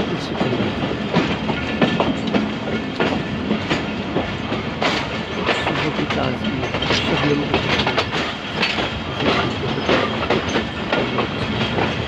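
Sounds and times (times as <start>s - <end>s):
train wheels rumbling: 0.0s - 12.0s
wheels clacking over rail joints: 0.0s - 12.0s.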